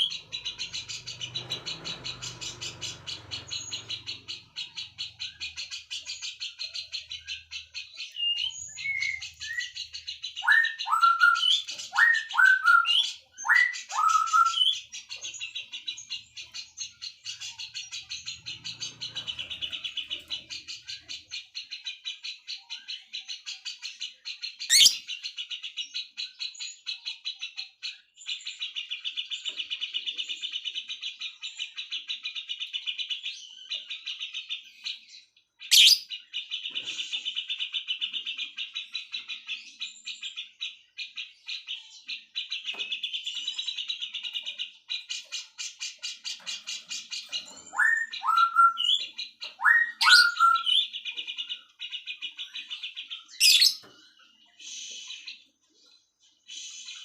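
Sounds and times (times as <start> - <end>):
bird chirping: 0.0 - 57.0
sharp bird calls: 0.0 - 57.0.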